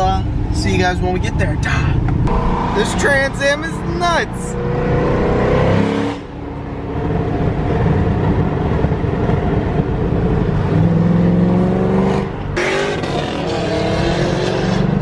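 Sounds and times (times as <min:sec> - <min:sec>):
car engine revving hard: 0:02.3 - 0:06.3, 0:10.7 - 0:15.0.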